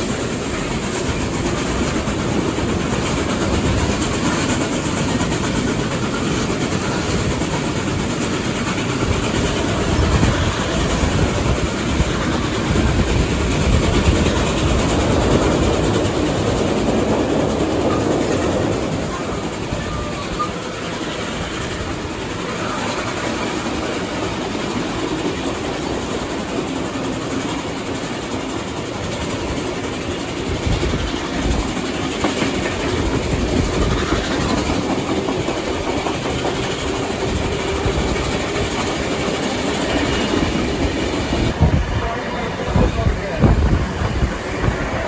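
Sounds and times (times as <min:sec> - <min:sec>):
train carriage rumble: 0:00.0 - 0:45.0
wheels clicking over rail joints: 0:00.0 - 0:45.0.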